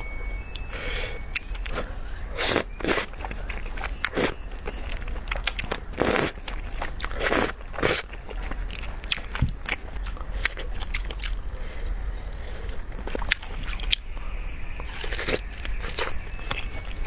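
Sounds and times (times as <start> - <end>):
noisy bursts: 0.0 - 6.4
wet chewing and biting: 0.6 - 14.1.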